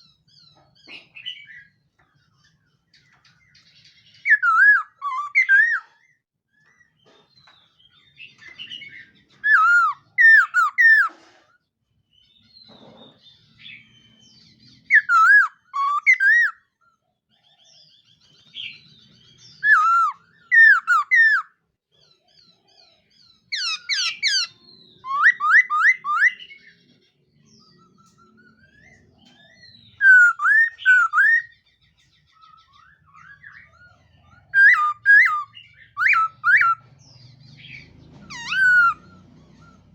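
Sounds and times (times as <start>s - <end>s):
bird whistling phrases: 4.2s - 6.0s, 8.7s - 11.1s, 14.9s - 16.6s, 19.6s - 21.5s, 23.5s - 26.7s, 27.7s - 31.6s, 32.4s - 36.8s, 37.7s - 39.9s
soft bird chattering: 17.3s - 39.9s.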